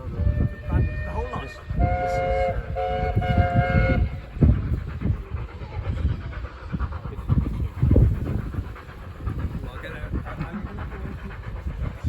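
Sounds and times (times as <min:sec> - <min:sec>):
locomotive exhaust beats: 0:00.0 - 0:12.0
locomotive whistle: 0:00.1 - 0:04.2.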